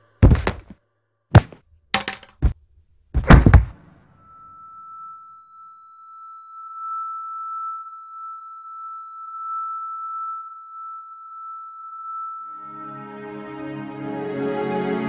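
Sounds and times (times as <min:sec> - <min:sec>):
soft music: 0:12.6 - 0:15.0.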